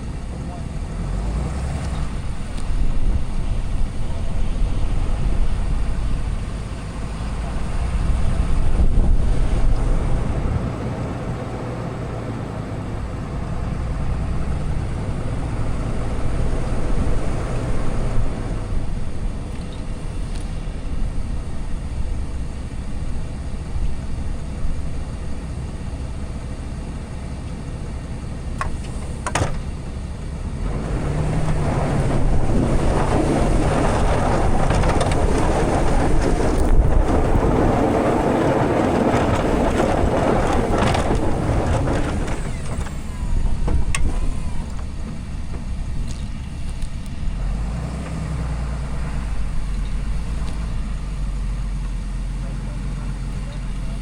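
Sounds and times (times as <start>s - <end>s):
diesel truck engine running: 0.0s - 54.0s
rushing noise: 30.6s - 46.0s.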